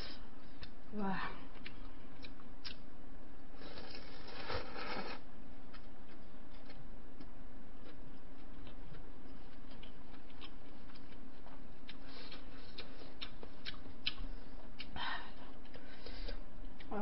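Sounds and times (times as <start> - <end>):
steady low hum: 0.0 - 17.0
wet chewing mouth clicks: 8.5 - 15.0.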